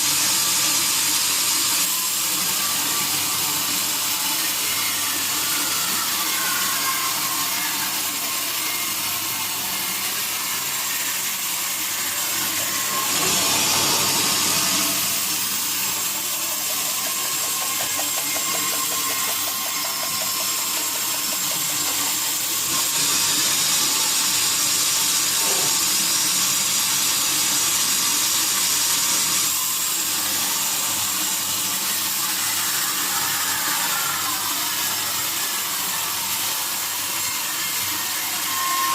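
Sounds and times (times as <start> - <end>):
sawmill saw cutting wood: 0.0 - 38.9.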